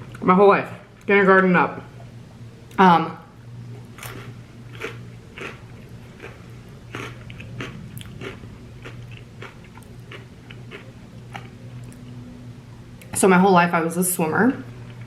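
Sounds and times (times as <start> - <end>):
chewing crunchy snacks: 3.9 - 12.2.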